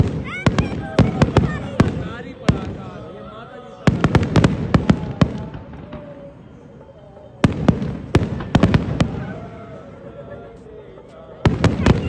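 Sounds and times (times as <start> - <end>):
fireworks bangs: 0.0 - 9.9, 11.4 - 12.0.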